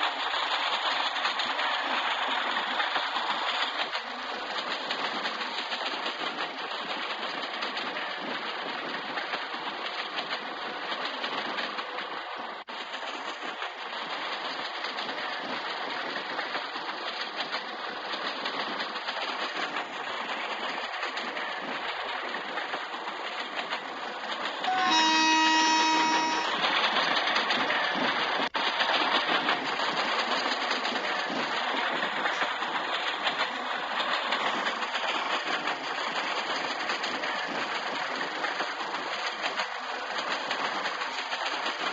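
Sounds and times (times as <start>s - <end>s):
train rumble and rattle: 0.0s - 41.9s
locomotive horn blast: 24.7s - 26.6s.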